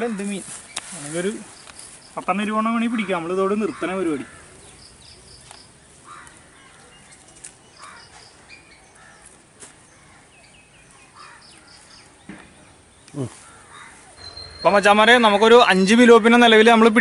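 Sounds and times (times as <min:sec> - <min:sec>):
faint outdoor ambience: 0:00.0 - 0:17.0
bird calling high notes: 0:14.2 - 0:16.6.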